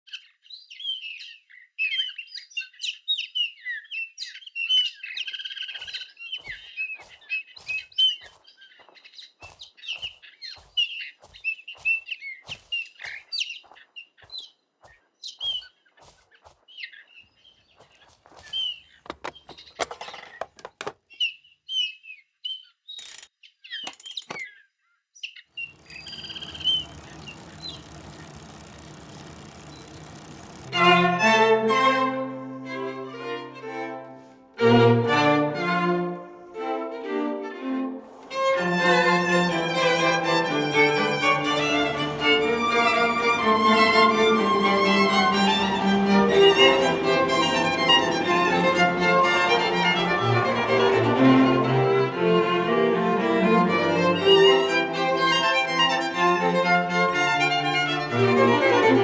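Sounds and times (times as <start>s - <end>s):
small birds chirping: 0.1s - 31.1s.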